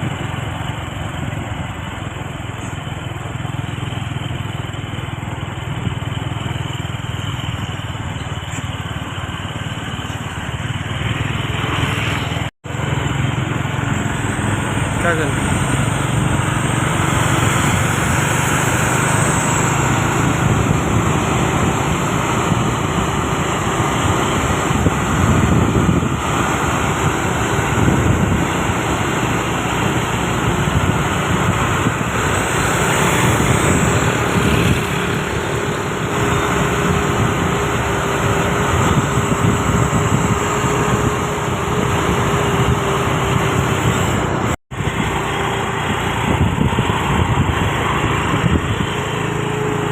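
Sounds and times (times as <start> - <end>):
road traffic noise: 0.0 - 49.9
vehicle engines running: 0.0 - 49.9.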